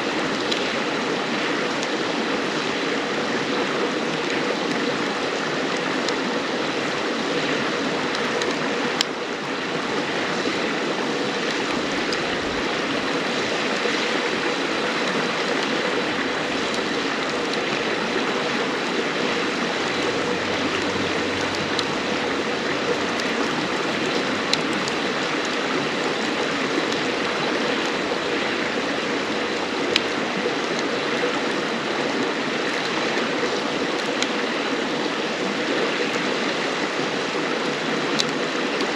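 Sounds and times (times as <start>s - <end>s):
river water over stones: 0.0s - 38.9s
wood fire popping: 11.3s - 31.6s.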